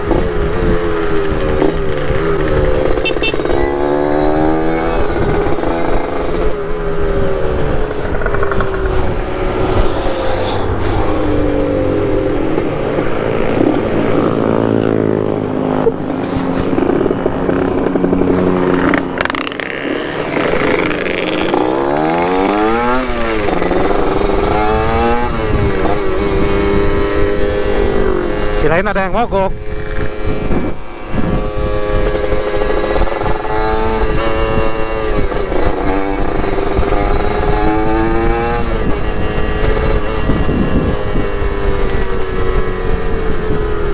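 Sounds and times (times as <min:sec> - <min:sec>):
two-stroke motorcycle engines revving: 0:00.0 - 0:43.9.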